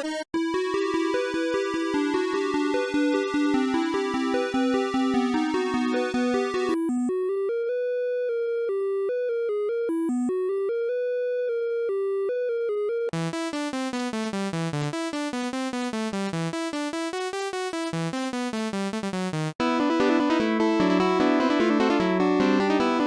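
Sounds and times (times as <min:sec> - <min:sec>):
synth melody: 0:00.4 - 0:19.5
ticking beat: 0:09.1 - 0:19.6.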